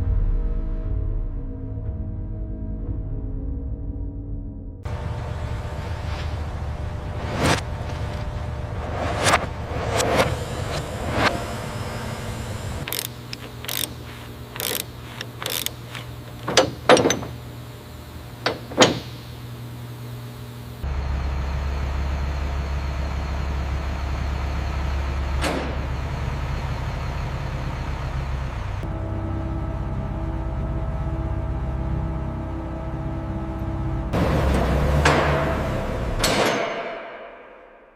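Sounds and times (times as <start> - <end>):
loud low rumble: 0.0 - 12.9, 20.8 - 36.3
low steady hum: 4.8 - 36.4
mechanical clicks and knocks: 12.8 - 17.5, 18.4 - 19.4.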